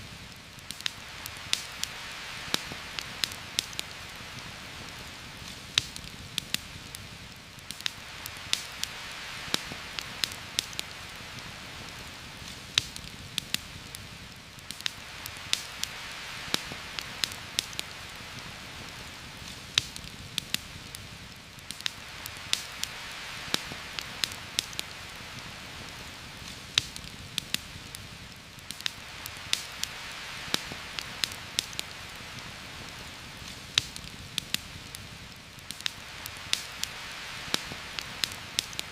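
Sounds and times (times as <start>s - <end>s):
heavy rain hiss: 0.0s - 38.9s
sharp clicks and pops: 35.6s - 36.9s.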